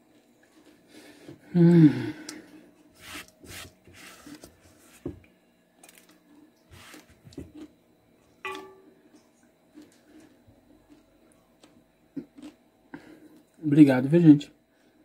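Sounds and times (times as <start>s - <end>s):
crunchy chewing: 5.8s - 7.8s, 9.1s - 13.6s.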